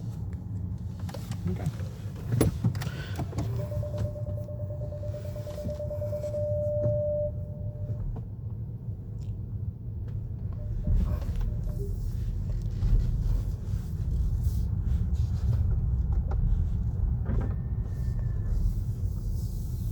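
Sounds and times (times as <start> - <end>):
steady whine: 3.2 - 8.1.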